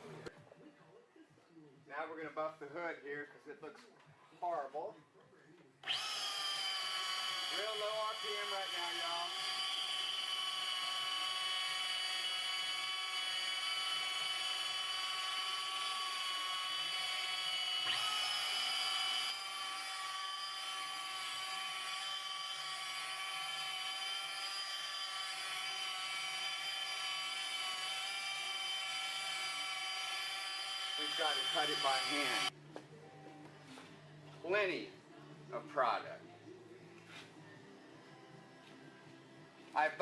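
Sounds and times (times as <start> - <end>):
rotary buffer whine: 17.1 - 32.5.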